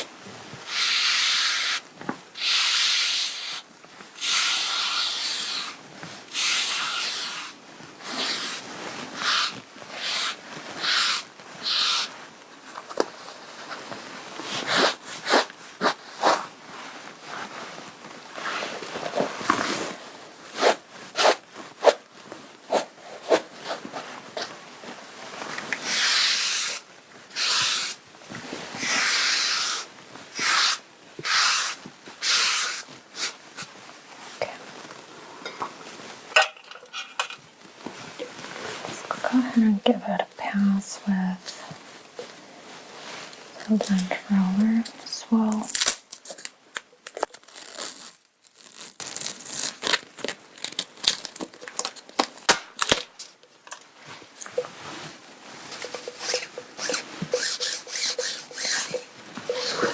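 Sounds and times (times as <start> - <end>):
lint brush brushing fabric: 6.3 - 12.2, 43.0 - 45.6, 54.3 - 59.9.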